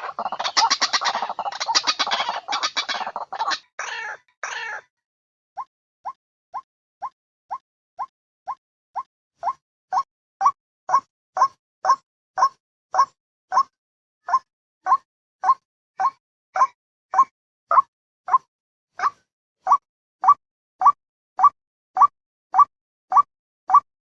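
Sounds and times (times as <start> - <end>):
waterhen calls: 0.0 - 4.8.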